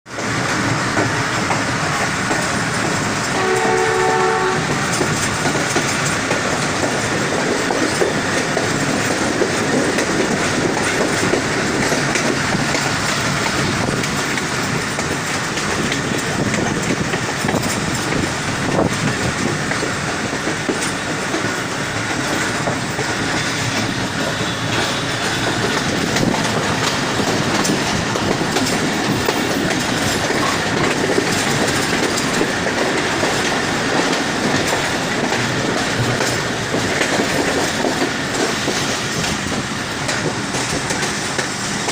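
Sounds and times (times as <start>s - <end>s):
train wheels clattering over rail joints: 0.1s - 41.9s
train horn blast: 3.3s - 4.8s.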